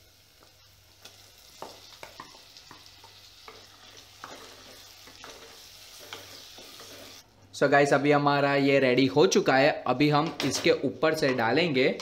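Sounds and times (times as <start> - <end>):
food sizzling in hot oil: 0.0 - 7.2.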